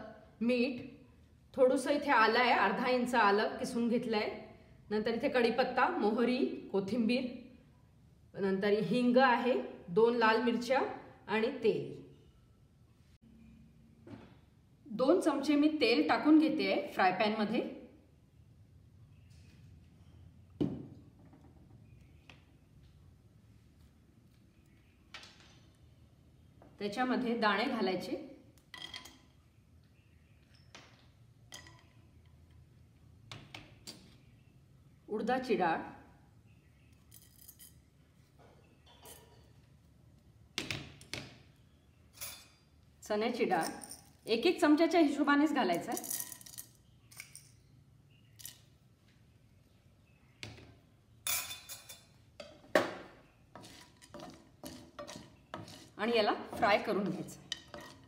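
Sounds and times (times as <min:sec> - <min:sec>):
spatula scraping in pan: 0:53.5 - 0:58.0.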